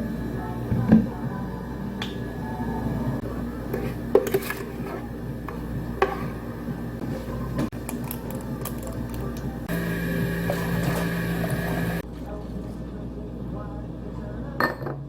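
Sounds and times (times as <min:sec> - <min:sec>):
steady background hum: 0:00.0 - 0:15.0
cups and utensils clinking: 0:03.7 - 0:06.5.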